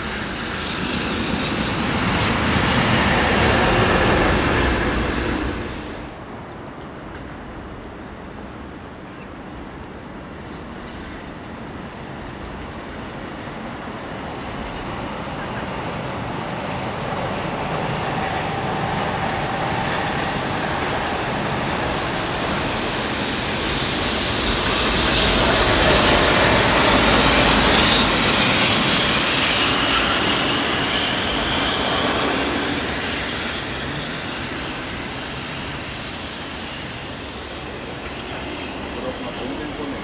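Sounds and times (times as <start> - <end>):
train wheels on rails: 9.8 - 40.0.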